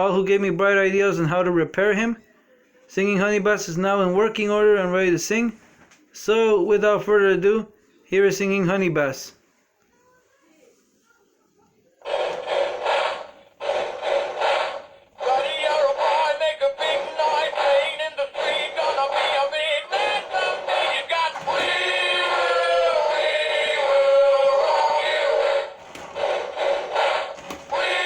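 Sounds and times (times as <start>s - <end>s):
toy singing through small speaker: 15.2s - 25.8s, 27.7s - 28.0s.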